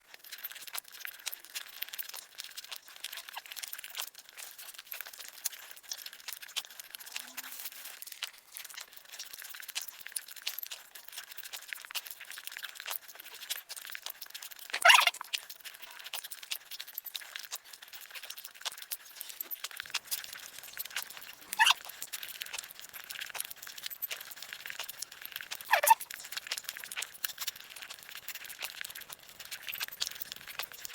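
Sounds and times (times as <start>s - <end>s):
crackly chewing noises: 0.0s - 30.9s.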